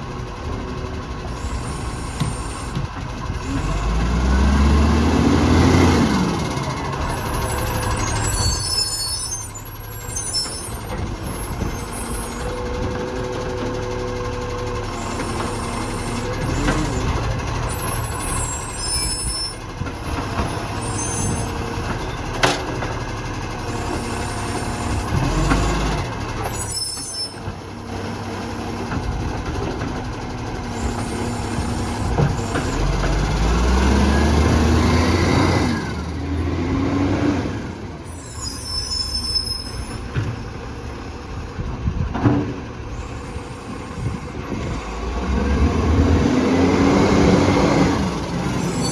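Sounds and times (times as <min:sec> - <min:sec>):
diesel engine running: 0:00.0 - 0:48.9
air brake hisses: 0:01.4 - 0:02.8, 0:42.9 - 0:45.0.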